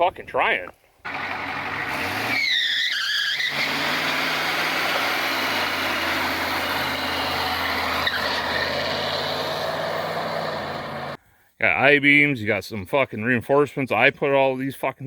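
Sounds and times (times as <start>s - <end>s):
tire and road noise: 1.0s - 11.2s
diesel engine running: 1.1s - 2.5s, 3.4s - 11.2s
tires squealing: 1.1s - 11.2s.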